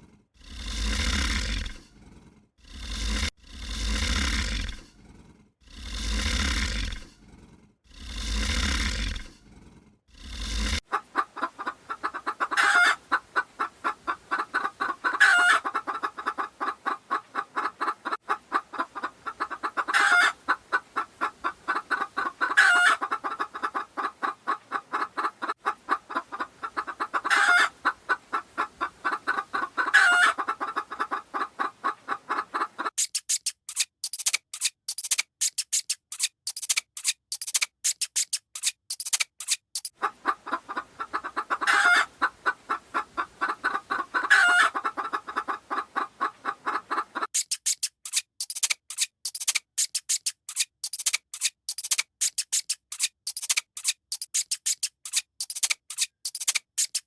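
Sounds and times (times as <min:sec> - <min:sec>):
fowl clucking: 0:10.8 - 0:33.4, 0:39.8 - 0:48.2.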